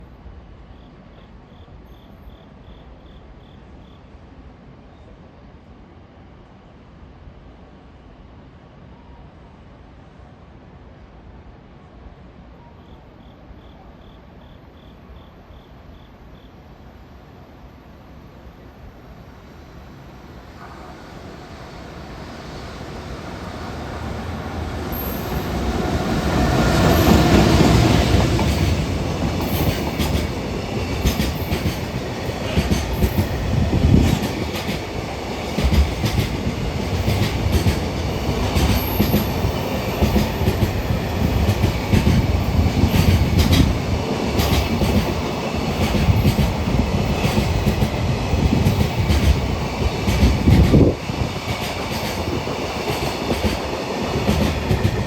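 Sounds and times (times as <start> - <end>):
electric locomotive passing: 16.0 - 55.0
train wheels clattering over rail joints: 24.3 - 55.0.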